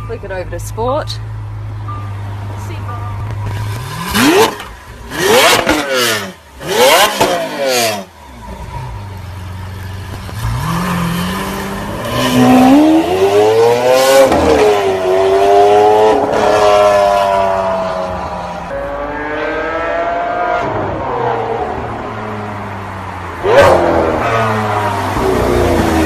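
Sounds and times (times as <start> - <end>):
car engine idling: 0.0 - 12.0
car engine revving: 1.2 - 26.0
car pulling away: 3.2 - 26.0.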